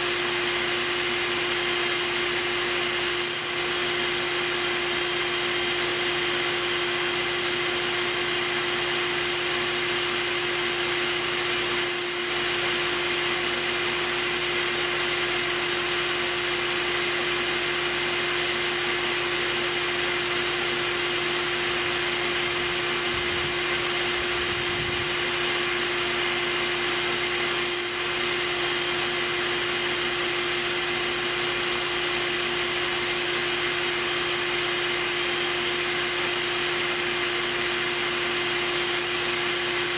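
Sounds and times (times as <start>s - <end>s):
vacuum motor whining: 0.0s - 39.9s.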